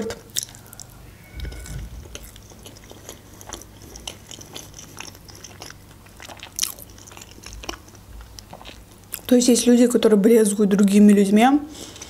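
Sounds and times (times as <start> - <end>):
person chewing food: 0.0 - 9.3.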